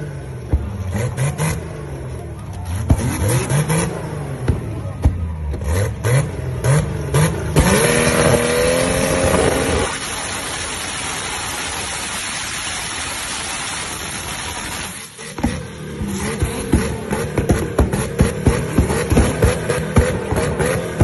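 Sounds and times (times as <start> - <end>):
car engine revving with pops: 0.0 - 10.9, 14.5 - 21.0
hissing rush of fire from pipe: 8.2 - 15.4.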